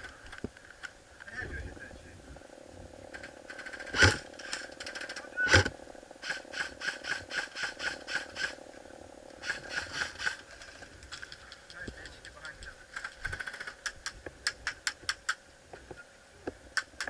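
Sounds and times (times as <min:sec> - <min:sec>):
airsoft gunshots: 0:03.5 - 0:08.6.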